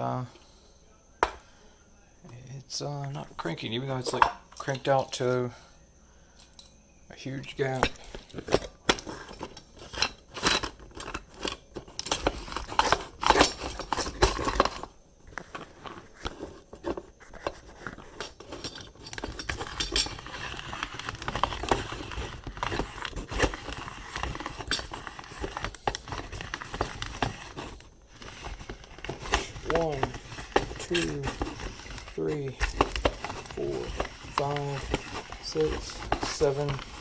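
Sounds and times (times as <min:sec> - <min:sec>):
hand coffee grinder crunching beans: 0:07.6 - 0:37.0.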